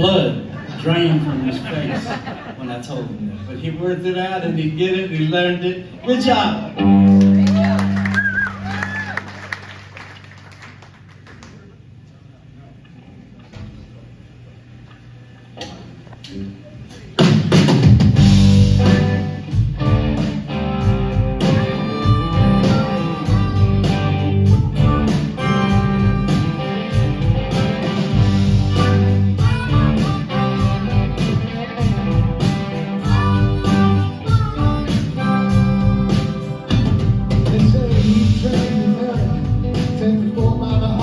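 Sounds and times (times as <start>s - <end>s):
live rock band playing: 6.8s - 8.4s, 17.2s - 41.0s.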